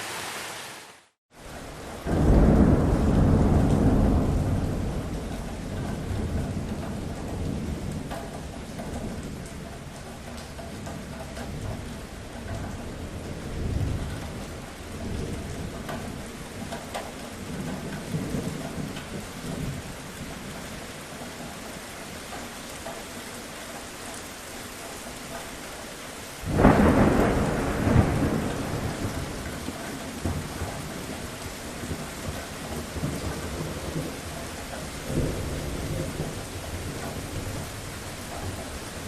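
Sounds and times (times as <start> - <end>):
steady rain: 0.0 - 39.0
rumbling thunder: 1.9 - 20.8, 26.4 - 39.0
loud thunderclap: 2.0 - 9.6, 26.4 - 38.7.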